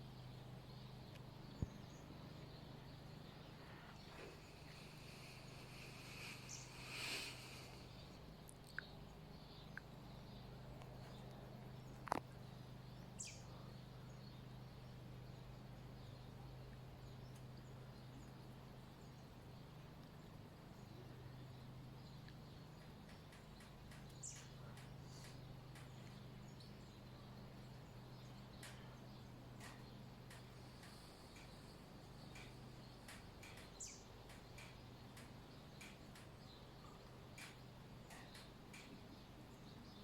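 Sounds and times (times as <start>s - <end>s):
faint low hum: 0.0s - 40.0s
faint clicks and ticks: 10.6s - 12.4s, 22.1s - 40.0s.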